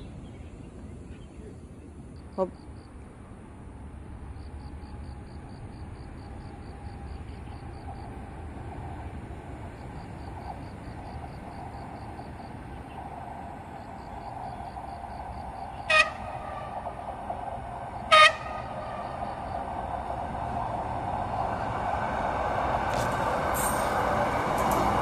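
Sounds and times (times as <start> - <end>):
approaching train rumble: 0.0 - 25.0
insect chirping: 2.0 - 3.2, 4.0 - 22.2.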